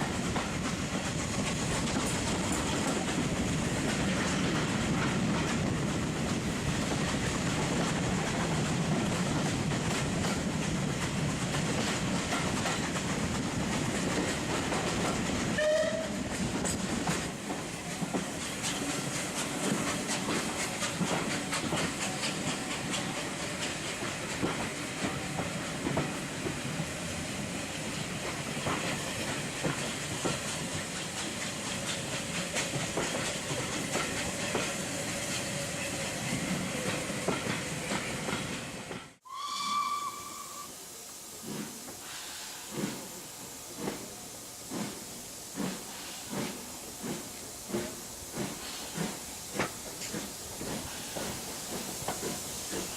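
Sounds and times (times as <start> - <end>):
wheels clicking over rail joints: 0.0 - 26.6
train rumble: 0.0 - 39.3, 40.2 - 52.9
train whistle: 15.6 - 16.3, 39.2 - 40.9.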